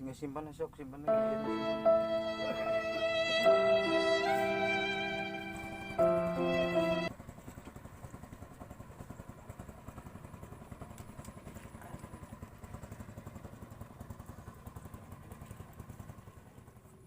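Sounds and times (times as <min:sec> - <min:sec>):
small engine chugging: 0:07.1 - 0:17.0.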